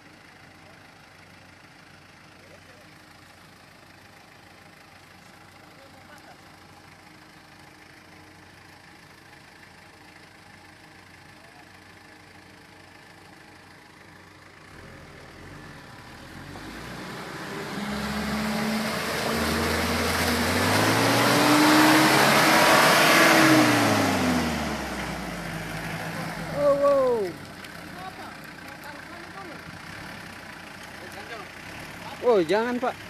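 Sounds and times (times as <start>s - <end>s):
pickup engine revving: 14.6s - 33.0s.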